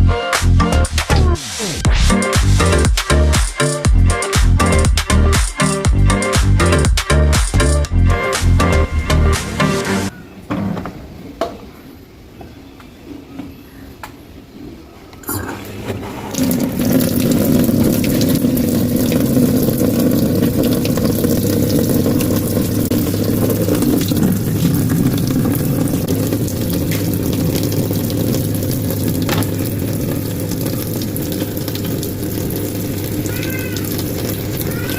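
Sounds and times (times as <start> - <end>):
water running into washing machine: 15.2 - 34.9.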